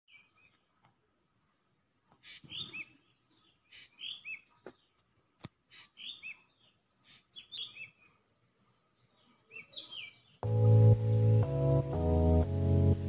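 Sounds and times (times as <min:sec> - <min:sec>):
small bird chirping: 0:02.2 - 0:05.1, 0:05.7 - 0:08.2, 0:08.9 - 0:10.5.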